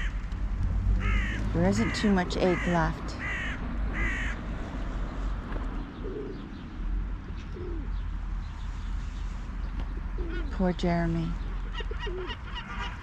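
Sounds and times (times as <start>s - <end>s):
low rumble: 0.0s - 5.5s
crow cawing: 1.0s - 4.4s
pigeon cooing: 6.0s - 6.5s, 7.4s - 8.0s, 10.0s - 10.6s, 11.5s - 13.0s.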